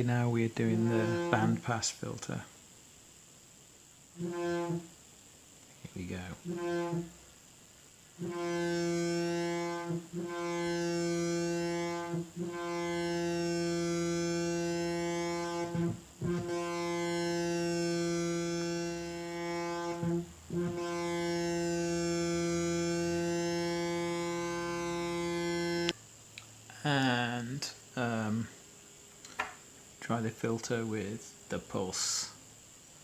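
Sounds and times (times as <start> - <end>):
synthesizer droning note: 0.0 - 1.6, 4.2 - 5.0, 6.0 - 7.3, 8.1 - 26.0.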